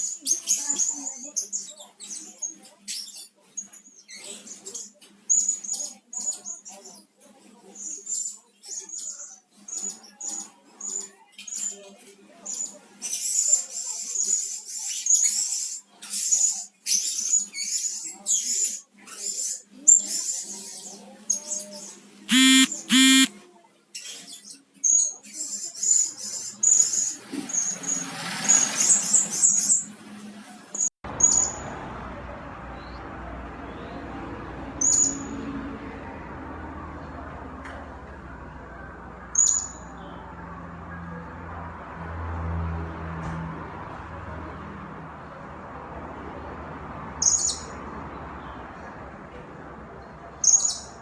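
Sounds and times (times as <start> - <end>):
harsh parrot calls: 22.3 - 23.3.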